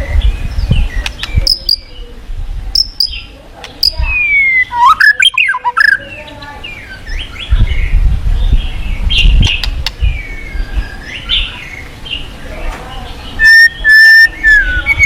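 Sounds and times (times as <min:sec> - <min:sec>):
bird singing whistles and chirps: 0:02.8 - 0:11.9, 0:13.4 - 0:15.0.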